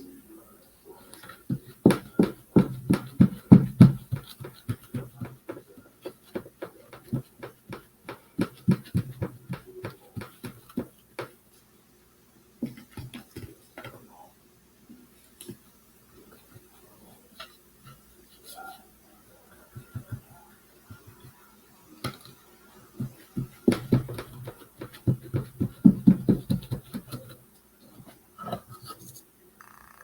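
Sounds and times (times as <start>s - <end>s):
paintbrush dabbing on wood: 1.2s - 11.3s, 19.5s - 21.4s, 23.0s - 27.3s.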